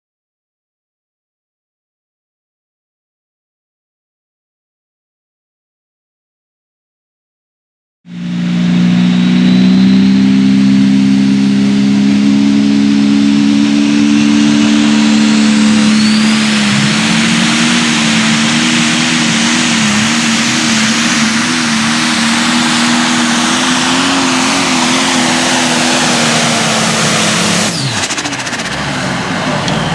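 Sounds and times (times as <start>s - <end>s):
diesel engine at high revs: 8.1s - 29.9s.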